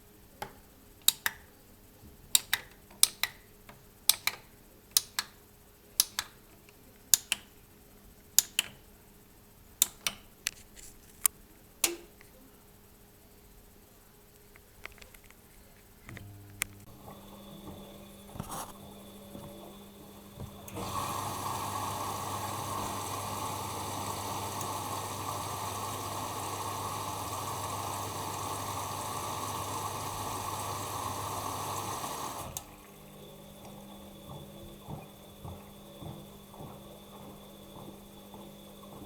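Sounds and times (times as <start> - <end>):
inlet valve hum: 16.0 - 39.0
water rushing into washing machine: 16.9 - 39.0.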